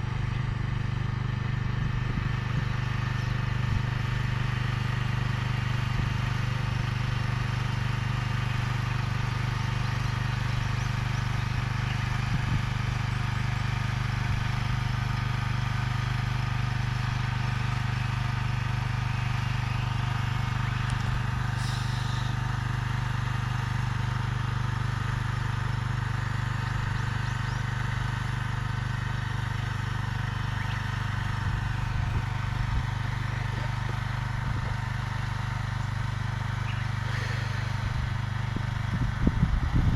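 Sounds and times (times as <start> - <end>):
machine engine humming: 0.0 - 6.8, 17.3 - 24.6, 28.6 - 39.9
brief hiss: 21.6 - 22.4.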